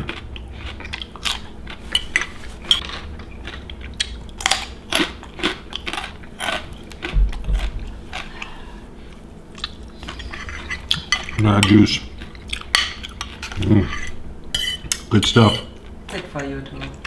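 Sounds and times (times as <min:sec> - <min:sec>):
biting and crunching food: 0:00.0 - 0:08.5
cutlery clinking against dishes: 0:10.3 - 0:12.0, 0:12.6 - 0:15.8.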